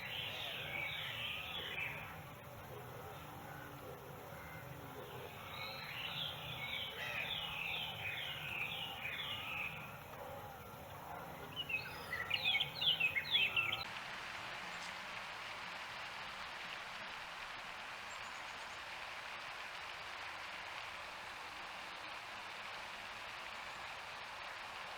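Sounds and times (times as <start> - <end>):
birdsong: 0.0 - 13.9.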